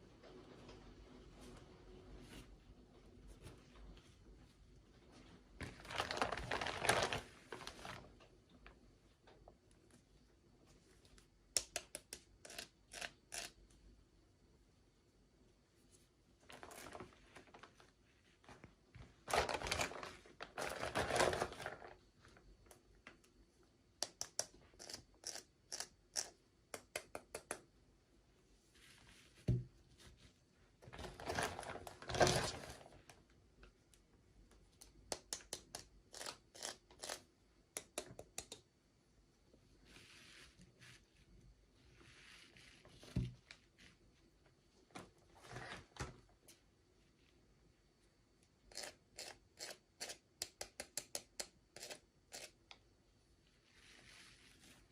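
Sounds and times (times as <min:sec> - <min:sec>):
packaging crinkling and tearing: 0:05.6 - 0:08.2, 0:19.2 - 0:22.0
small sharp clicks and taps: 0:26.2 - 0:27.7, 0:37.7 - 0:38.7.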